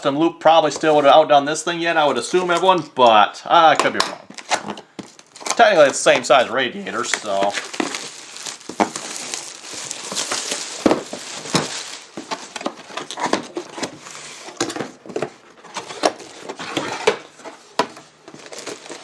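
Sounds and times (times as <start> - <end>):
packaging rustling: 4.3 - 19.0.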